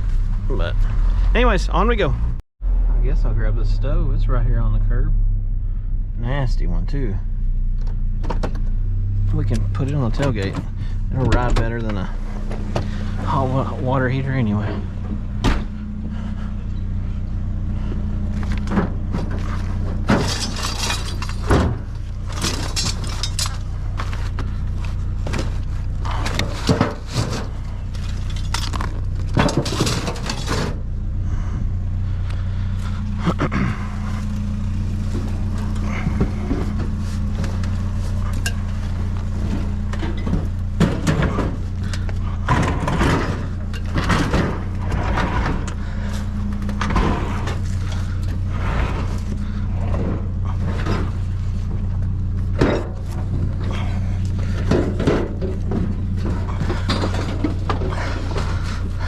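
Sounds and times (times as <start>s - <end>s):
truck engine idling: 0.0s - 59.0s
sheet metal clanking and scraping: 18.4s - 23.9s, 24.5s - 30.9s, 34.8s - 59.0s.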